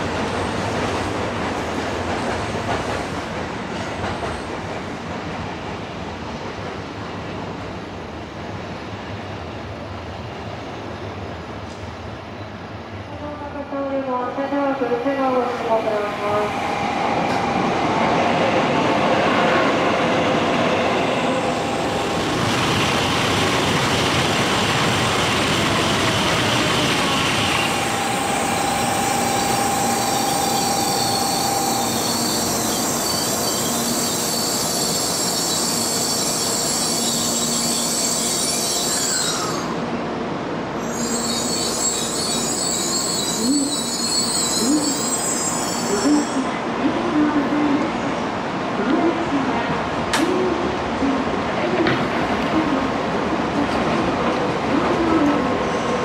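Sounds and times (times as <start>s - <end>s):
train running noise: 0.0s - 56.0s
high-pitched brake squealing: 27.4s - 39.8s, 40.8s - 46.4s
brief tone: 27.7s - 33.6s.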